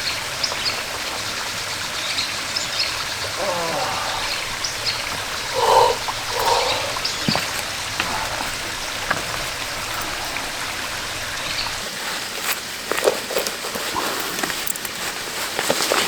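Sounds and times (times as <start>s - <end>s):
stream rushing: 0.0s - 14.0s
light drizzle ticks: 0.0s - 16.0s
short calls: 2.9s - 11.8s.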